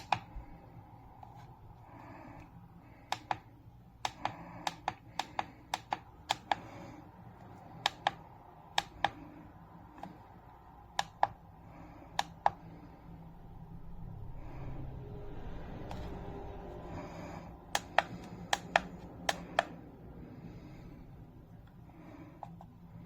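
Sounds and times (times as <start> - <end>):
faint low hum: 0.0 - 23.0
sharp clicks: 17.8 - 19.8.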